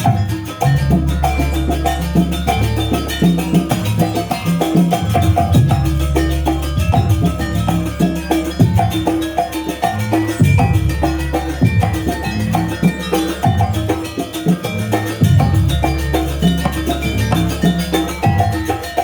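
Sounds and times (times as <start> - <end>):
gamelan ensemble playing: 0.0 - 19.0
low drum thumps: 5.0 - 7.9, 10.4 - 12.3.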